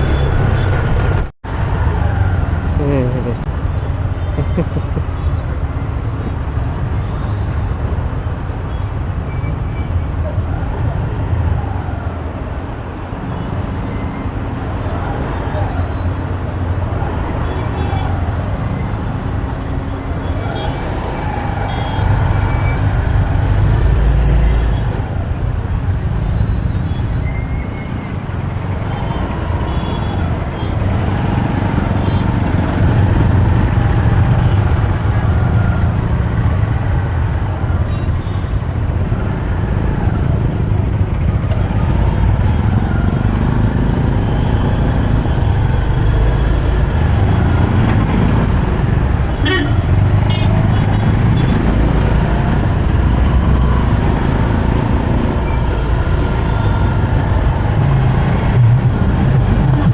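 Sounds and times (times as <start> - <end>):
road traffic engines rumbling: 0.0 - 59.9.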